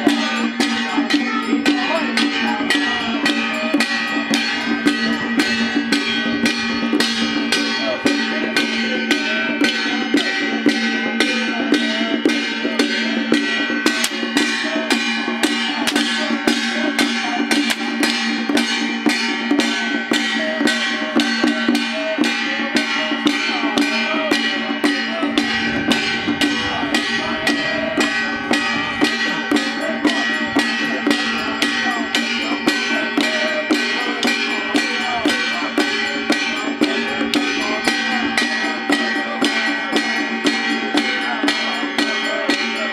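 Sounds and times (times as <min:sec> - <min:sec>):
continuous held tones: 0:00.0 - 0:42.9
percussion beating steady rhythm: 0:00.0 - 0:42.9.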